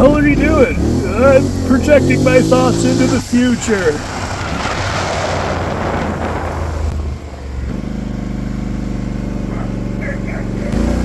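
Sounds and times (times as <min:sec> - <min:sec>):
atv engine idling: 0:00.0 - 0:04.2, 0:07.1 - 0:11.0
vehicle passing by: 0:00.0 - 0:11.0.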